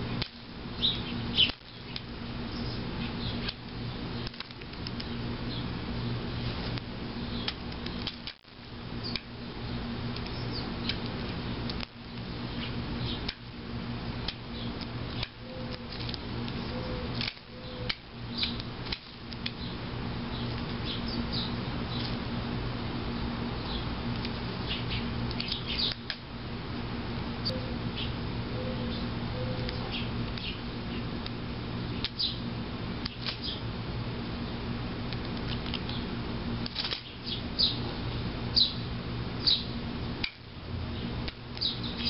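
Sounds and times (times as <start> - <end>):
steady low hum: 0.0 - 42.0
bird chirps: 38.6 - 38.8, 39.4 - 39.8.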